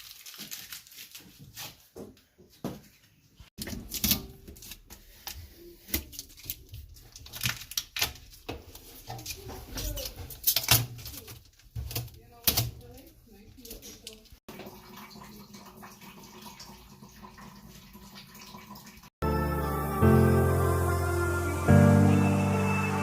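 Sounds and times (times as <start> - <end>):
clicks and knocks of handling: 3.6 - 14.4.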